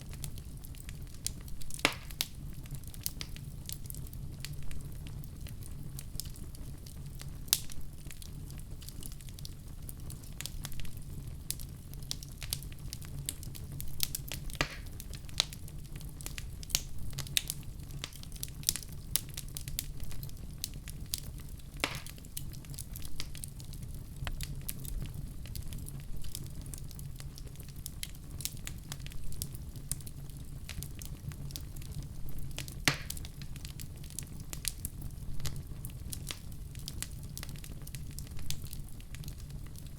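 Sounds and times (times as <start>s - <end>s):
low rumble of flames: 0.0s - 39.9s
wood fire crackling: 0.0s - 39.9s
sharp fire pops: 1.2s - 2.4s, 13.2s - 15.6s, 16.2s - 23.4s, 28.7s - 39.8s.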